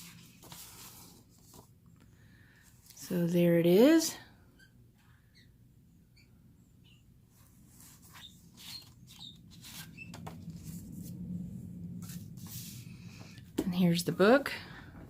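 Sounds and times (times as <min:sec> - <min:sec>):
soft rustling: 0:00.0 - 0:01.7.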